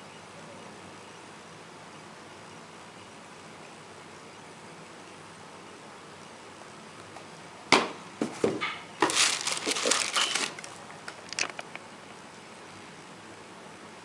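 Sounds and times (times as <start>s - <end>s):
paper packaging crinkling: 9.0s - 11.8s.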